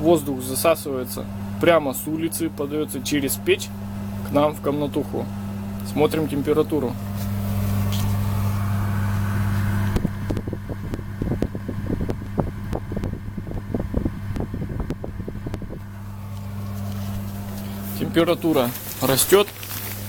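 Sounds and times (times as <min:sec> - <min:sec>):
air blower humming: 0:00.0 - 0:20.0.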